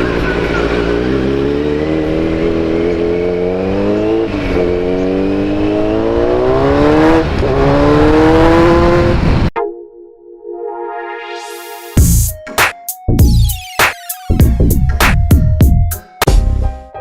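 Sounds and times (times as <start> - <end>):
motorcycle engine accelerating: 0.0 - 9.5.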